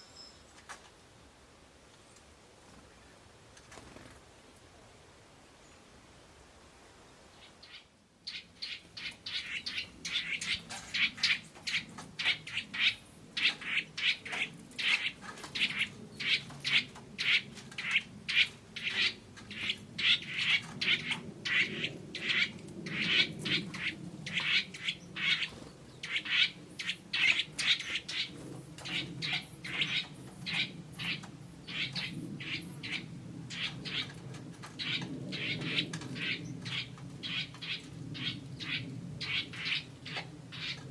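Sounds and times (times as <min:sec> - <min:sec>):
birds chirping: 0:07.4 - 0:34.2.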